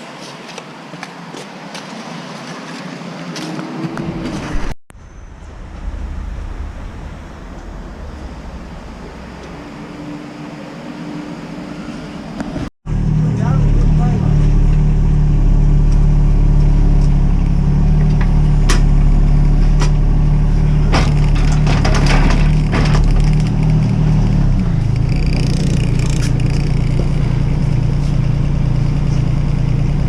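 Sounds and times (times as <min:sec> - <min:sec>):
sharp knocks: 0:20.9 - 0:23.8.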